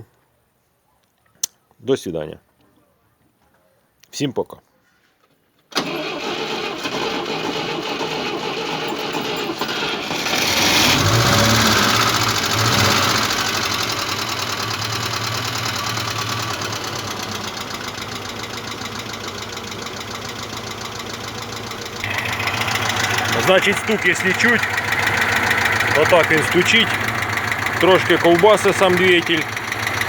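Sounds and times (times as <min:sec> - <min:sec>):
car engine starting and idling: 0:05.7 - 0:30.0
rhythmic engine knock: 0:24.6 - 0:30.0.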